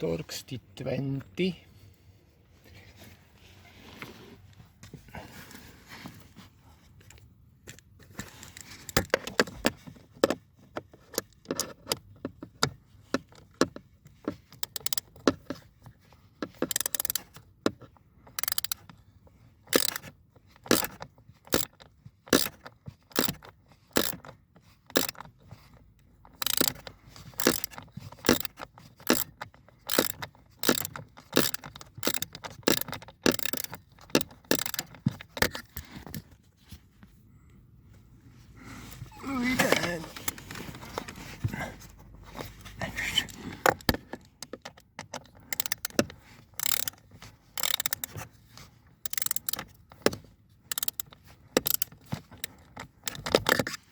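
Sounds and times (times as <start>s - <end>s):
quick clicks: 27.4s - 29.3s, 29.9s - 35.6s, 45.5s - 47.0s, 50.7s - 51.0s.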